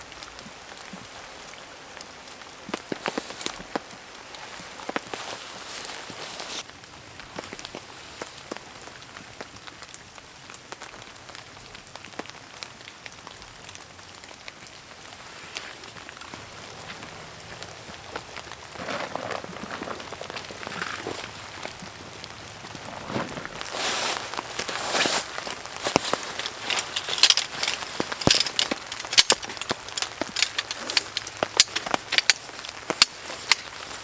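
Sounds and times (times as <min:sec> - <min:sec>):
heavy rain pattering: 0:00.0 - 0:34.0
loud irregular noises: 0:24.4 - 0:34.0.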